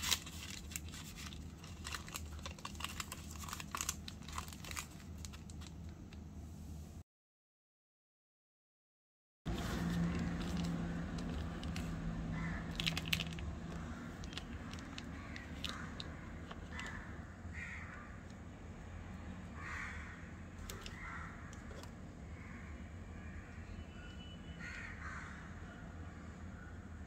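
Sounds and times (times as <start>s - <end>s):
bird cawing: 12.2s - 18.3s, 19.5s - 26.0s.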